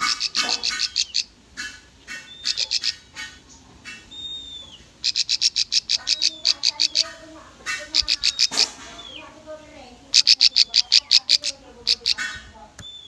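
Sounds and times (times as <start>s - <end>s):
bird fast sharp chirps: 3.9s - 9.2s.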